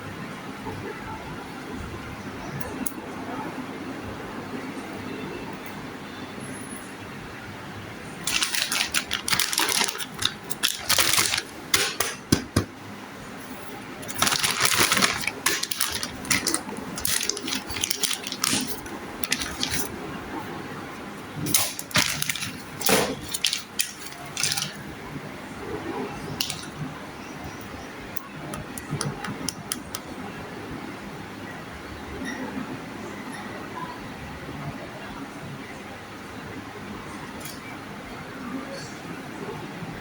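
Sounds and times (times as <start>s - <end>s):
plastic figures clicking: 8.2s - 12.2s, 14.0s - 19.9s, 21.5s - 24.8s, 26.4s - 26.8s, 28.2s - 30.1s
packaging rustling and crinkling: 8.2s - 12.7s, 13.5s - 20.0s, 21.4s - 25.0s, 26.2s - 26.9s.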